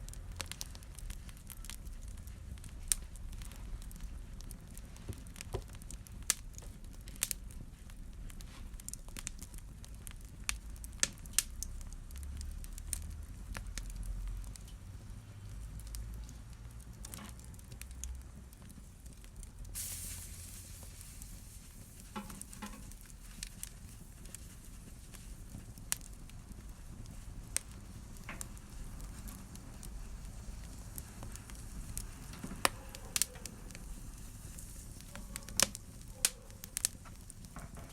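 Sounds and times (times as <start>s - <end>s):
wood fire crackling: 0.0s - 37.9s
brief hiss: 19.8s - 21.4s.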